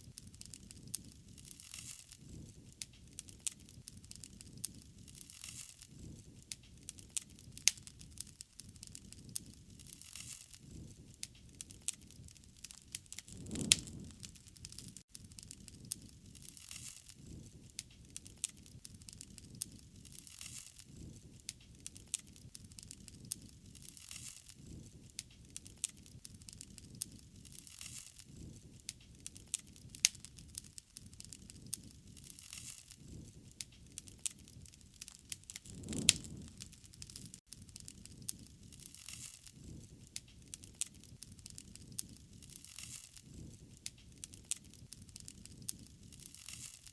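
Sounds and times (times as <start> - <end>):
wood fire crackling and popping: 0.0 - 46.9
low rushing of fire: 12.9 - 15.0, 34.8 - 38.9.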